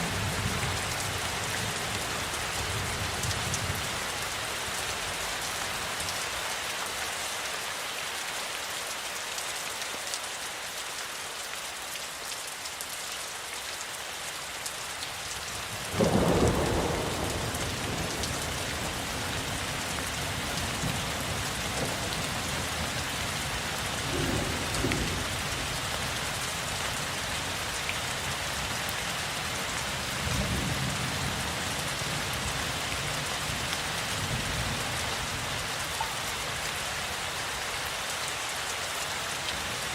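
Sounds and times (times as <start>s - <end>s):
steady rainfall: 0.0s - 39.9s
thunder rumbling: 16.0s - 22.4s, 24.0s - 25.7s.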